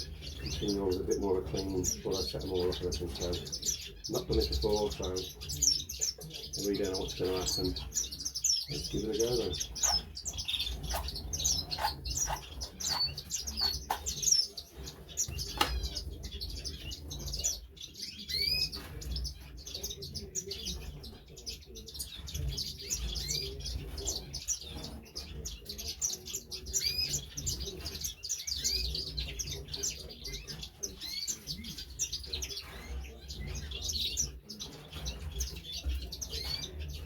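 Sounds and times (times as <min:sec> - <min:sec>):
canaries chirping: 0:00.0 - 0:37.0
sharp clicks and knocks: 0:15.3 - 0:15.9.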